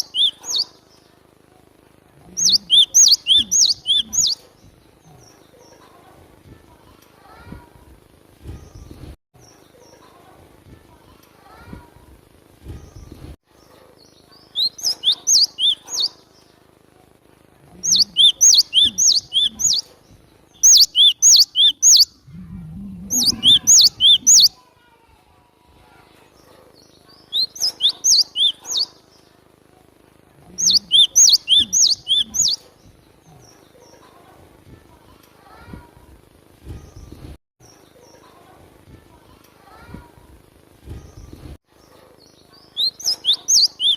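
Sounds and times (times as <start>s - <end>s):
bird singing sharp high notes: 0.0s - 0.7s, 2.4s - 4.4s, 17.9s - 19.8s, 20.6s - 22.2s, 23.1s - 24.6s, 27.4s - 28.9s, 30.6s - 32.6s, 42.8s - 43.9s.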